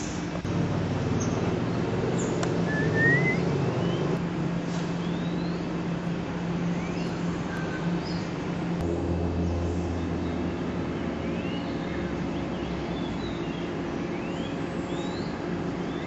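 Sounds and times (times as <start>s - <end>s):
low mechanical hum: 0.0s - 16.0s
birds rising whistled calls: 1.1s - 4.2s.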